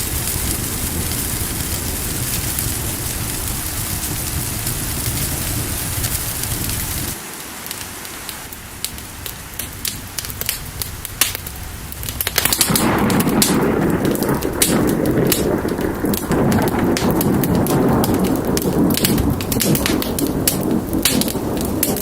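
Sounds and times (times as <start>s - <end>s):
fire crackling and popping: 0.0s - 22.0s
steady rain: 0.0s - 22.0s.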